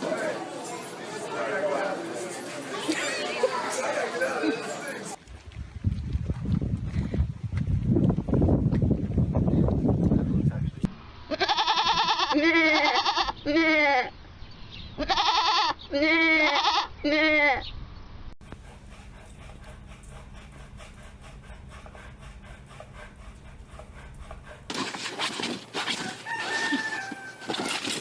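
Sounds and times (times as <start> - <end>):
goat bleating: 11.3 - 14.1, 15.0 - 17.7
clattering noises: 24.7 - 28.0.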